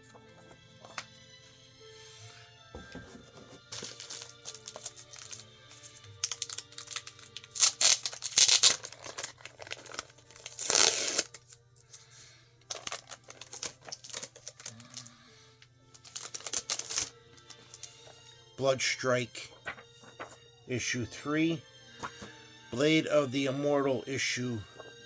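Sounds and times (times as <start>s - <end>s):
quiet background music: 0.0s - 25.0s
comic books crinkling and rustling: 2.8s - 15.2s, 16.0s - 21.1s.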